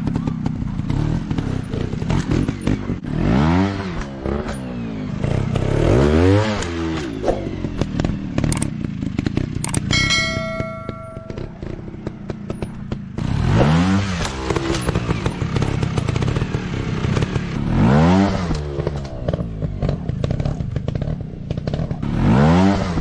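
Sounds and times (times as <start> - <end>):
dirt bike engines clattering: 0.0 - 23.0
engine revving: 0.7 - 9.9, 11.6 - 23.0
steady ringing tone: 9.7 - 12.0.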